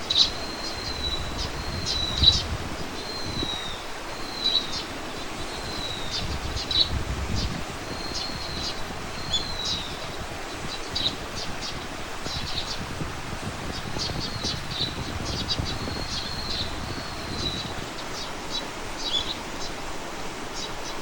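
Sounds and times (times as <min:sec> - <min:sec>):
songbirds chirping: 0:00.0 - 0:21.0
wind rushing: 0:00.8 - 0:04.1, 0:05.7 - 0:18.8.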